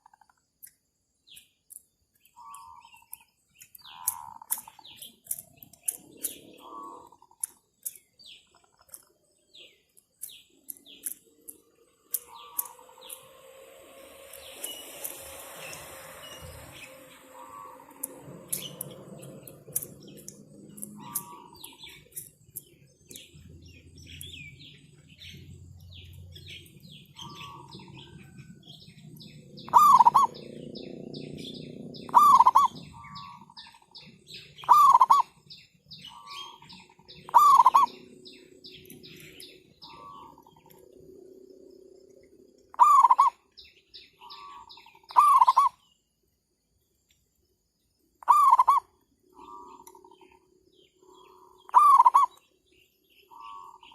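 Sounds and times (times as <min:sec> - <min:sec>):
small birds chirping: 0:00.0 - 0:53.9
doves cooing: 0:06.1 - 0:07.4, 0:17.3 - 0:20.2, 0:29.6 - 0:33.6, 0:34.6 - 0:35.3, 0:37.2 - 0:38.1, 0:42.7 - 0:43.4, 0:51.0 - 0:52.4.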